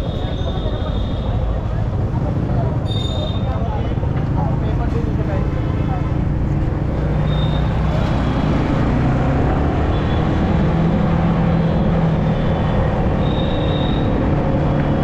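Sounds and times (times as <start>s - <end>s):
road and traffic noise: 0.0s - 15.0s.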